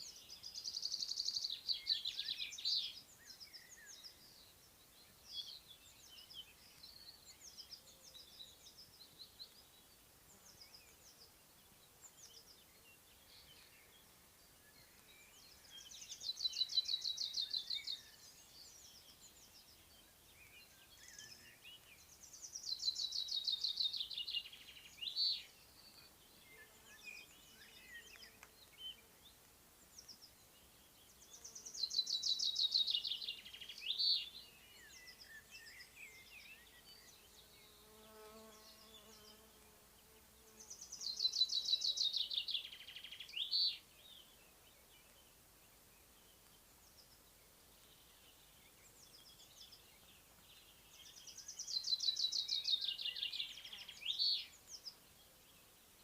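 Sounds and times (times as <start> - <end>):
songbird trilling song: 0.0 - 56.0
bee buzzing faintly: 37.1 - 41.0.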